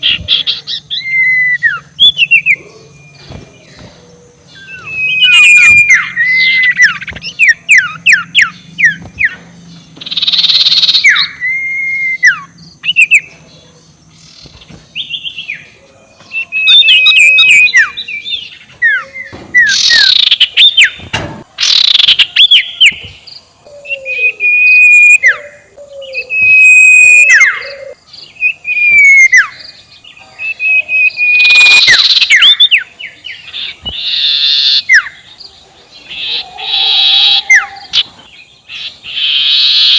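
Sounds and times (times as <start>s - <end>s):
owl cackling call: 36.1s - 39.9s.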